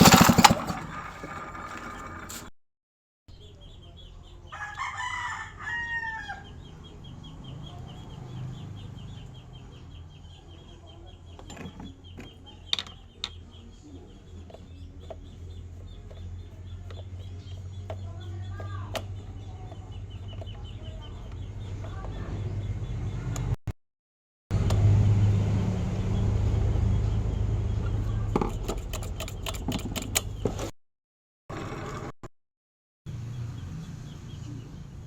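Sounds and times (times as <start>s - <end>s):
rooster crowing: 4.5s - 6.6s.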